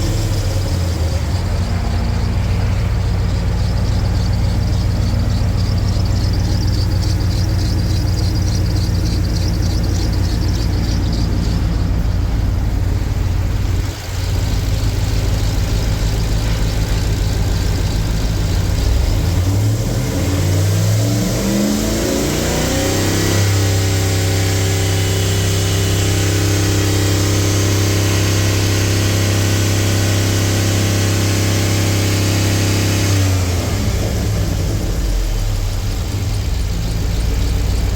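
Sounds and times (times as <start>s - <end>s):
engine idling and revving: 0.0s - 37.9s.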